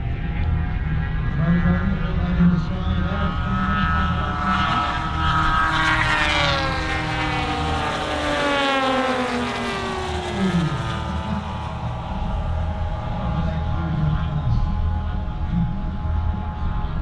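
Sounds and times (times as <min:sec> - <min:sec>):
model plane propeller engine passing: 0:03.2 - 0:15.9.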